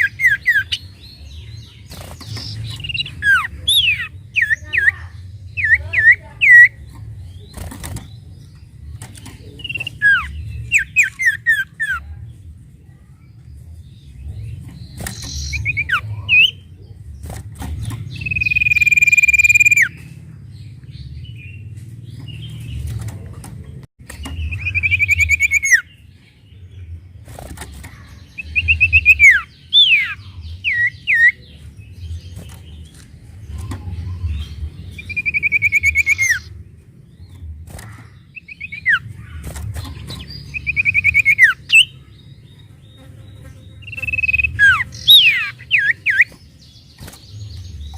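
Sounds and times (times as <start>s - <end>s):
bird buzzy trills: 32.1s - 36.6s, 37.6s - 47.9s.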